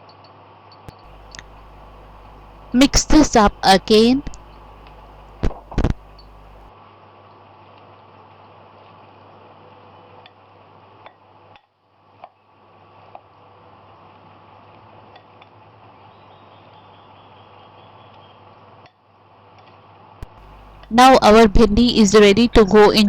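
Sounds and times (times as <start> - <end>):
steady low hiss: 1.1 - 6.7, 20.2 - 23.0.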